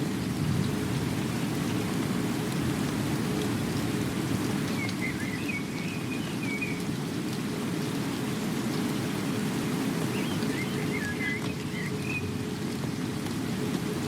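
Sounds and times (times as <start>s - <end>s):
steady rain: 0.0s - 14.0s
bird warbling call: 10.2s - 12.3s.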